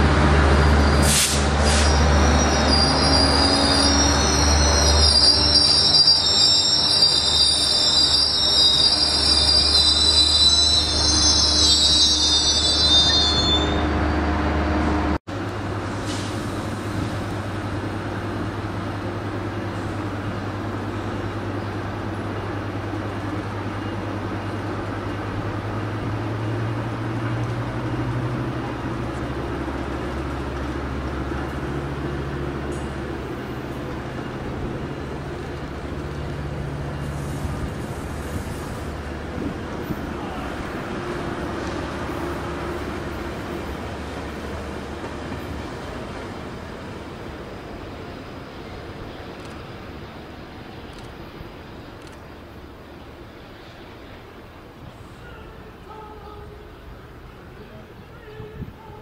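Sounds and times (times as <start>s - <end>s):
diesel locomotive engine drone: 0.0s - 59.0s
train rumble: 0.0s - 59.0s.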